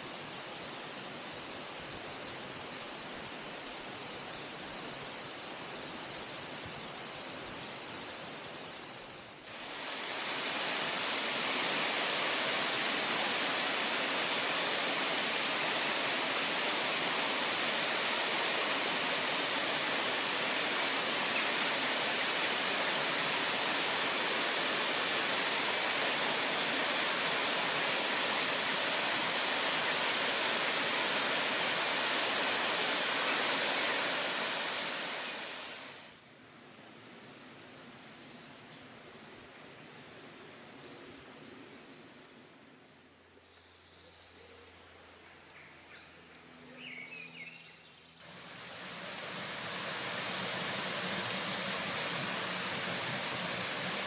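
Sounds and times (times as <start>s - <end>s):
waterfall rushing: 9.5s - 36.1s, 48.2s - 54.0s.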